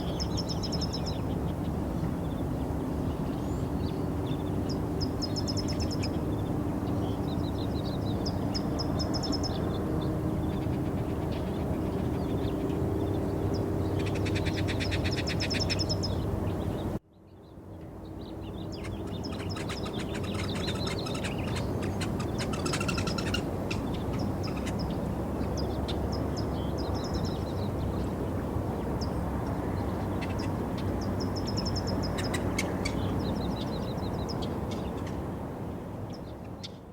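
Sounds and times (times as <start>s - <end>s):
birds chirping and trilling: 0.0s - 35.2s
outdoor background rumble: 0.0s - 36.9s.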